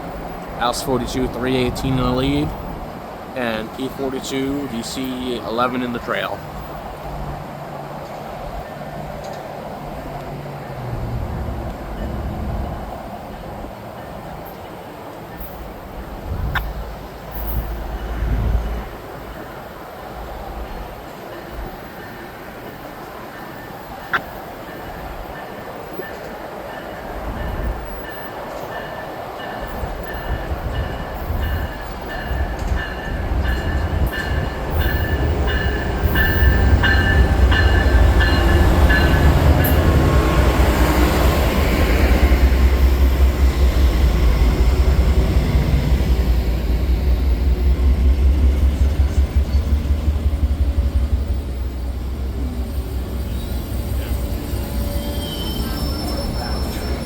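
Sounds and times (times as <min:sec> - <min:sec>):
locomotive bell ringing: 0:03.4 - 0:06.5, 0:21.4 - 0:57.0.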